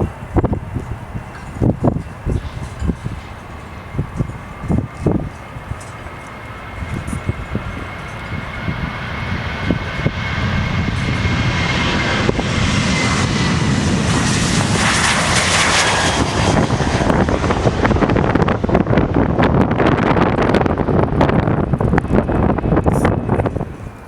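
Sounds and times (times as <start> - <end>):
jet airliner engine whine: 0.0 - 24.0
low rumble: 0.0 - 24.0
rushing jet noise: 0.0 - 24.0
wind buffeting microphone: 0.0 - 24.0.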